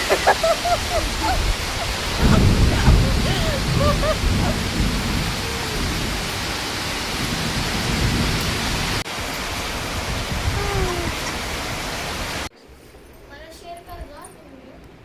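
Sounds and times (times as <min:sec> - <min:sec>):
low uneven rumble: 0:00.0 - 0:09.0
heavy rain and hail: 0:00.0 - 0:12.5.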